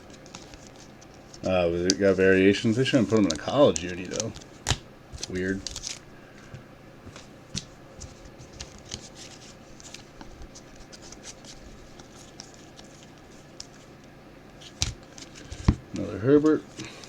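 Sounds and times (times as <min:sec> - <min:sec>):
trading cards flipped by hand: 0:02.9 - 0:06.0, 0:07.1 - 0:13.9.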